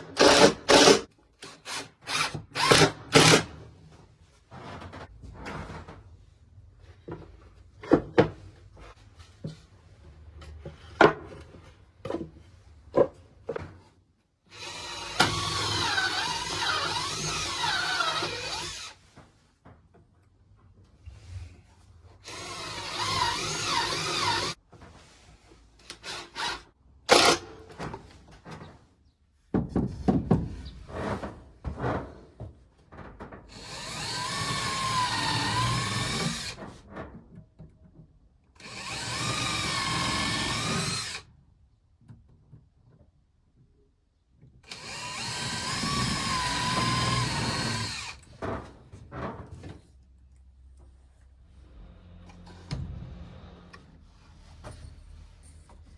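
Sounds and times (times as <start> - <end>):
power drill running: 0.0 - 3.5, 14.5 - 19.0, 22.2 - 24.6, 25.9 - 27.4, 33.5 - 36.6, 38.6 - 41.2, 44.6 - 48.3.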